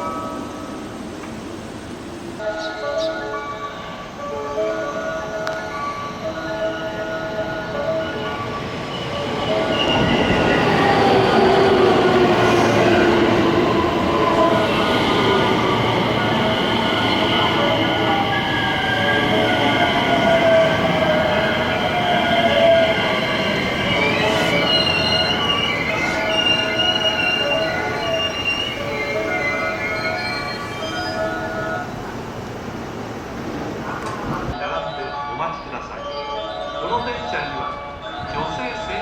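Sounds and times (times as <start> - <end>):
wheel or brake squeal: 22.5 - 31.4.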